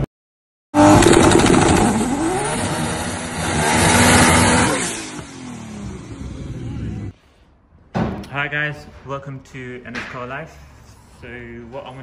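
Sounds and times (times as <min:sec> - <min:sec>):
car engine revving: 0:00.8 - 0:07.2.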